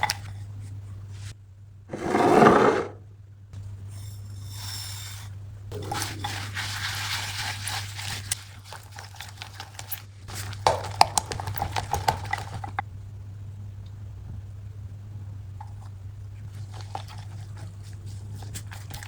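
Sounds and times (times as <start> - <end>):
steady low hum: 0.0 - 8.8, 10.0 - 19.0
batter scraping and sloshing: 5.7 - 12.8.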